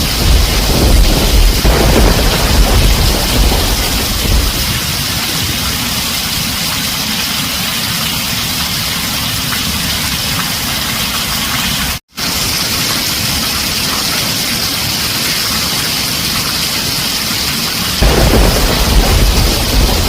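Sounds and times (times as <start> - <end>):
low rumble of thunder: 0.0 - 6.1, 18.0 - 20.0
heavy rain on a tin roof: 0.0 - 20.0.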